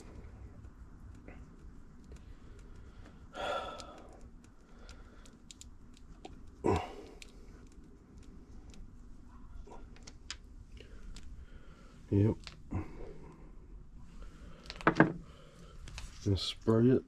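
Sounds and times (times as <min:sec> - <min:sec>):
man huffing breaths of effort: 0:03.3 - 0:04.1, 0:06.6 - 0:07.2.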